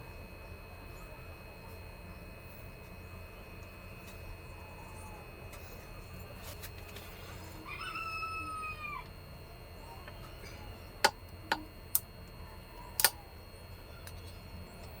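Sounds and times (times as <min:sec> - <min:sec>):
drawn-out animal call: 0:07.0 - 0:10.9.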